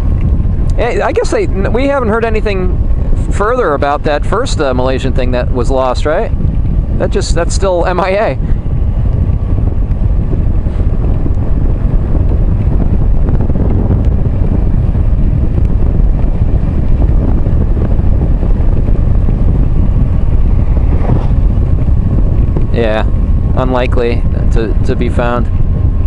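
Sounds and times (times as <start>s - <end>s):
motorcycle engine running: 0.0s - 26.0s
road noise: 0.0s - 26.0s
wind rush on microphone: 0.0s - 26.0s.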